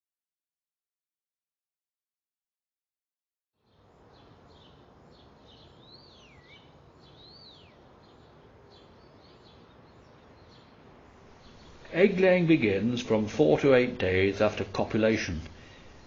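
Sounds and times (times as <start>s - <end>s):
birds chirping: 3.6s - 16.0s
low hiss: 3.6s - 16.0s.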